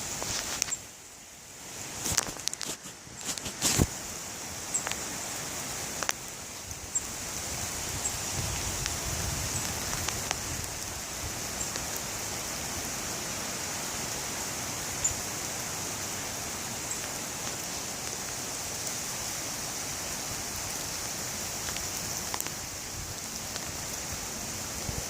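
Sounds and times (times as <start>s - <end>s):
windstorm with rain: 0.0s - 25.0s
light ticks: 4.8s - 5.0s, 6.0s - 6.3s, 9.6s - 10.4s, 21.6s - 22.6s.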